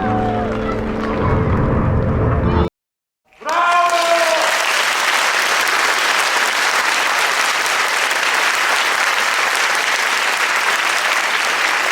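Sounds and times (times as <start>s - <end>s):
crowd applause: 3.3s - 11.9s.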